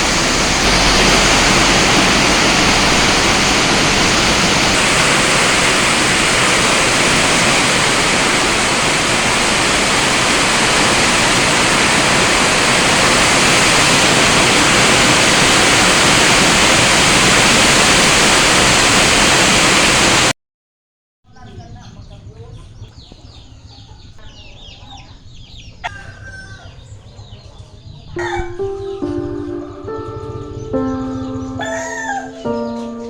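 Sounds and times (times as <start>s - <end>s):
heavy rain hissing: 0.0s - 20.3s, 28.6s - 33.0s.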